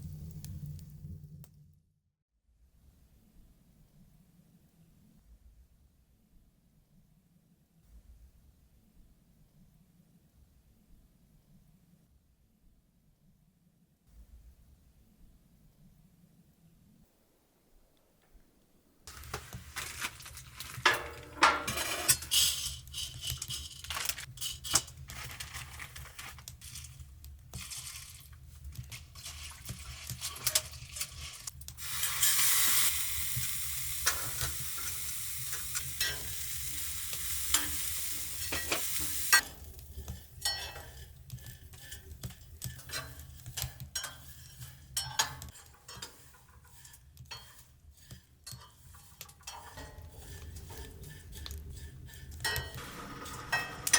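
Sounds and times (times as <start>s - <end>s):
food sizzling in a pan: 19.1s - 24.2s, 28.8s - 40.1s
utensils scraping and clinking: 19.1s - 53.9s.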